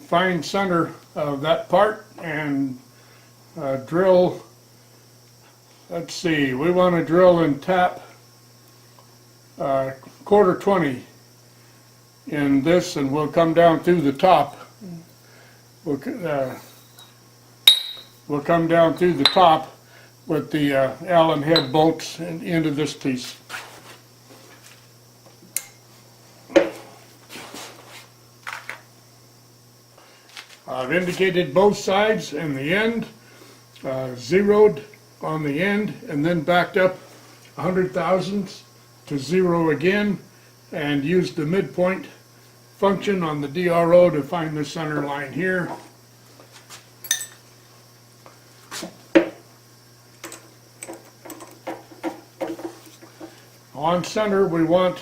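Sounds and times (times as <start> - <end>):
metal ringing: 17.7 - 18.2, 47.1 - 47.4
metal tools knocking and clinking: 17.7 - 18.2, 47.1 - 47.4.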